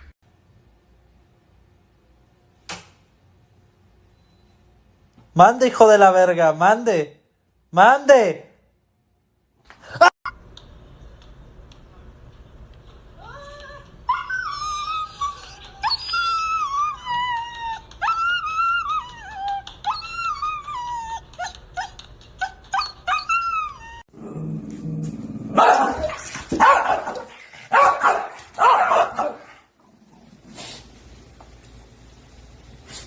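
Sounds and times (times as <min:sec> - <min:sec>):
dog whining: 0:14.1 - 0:24.1.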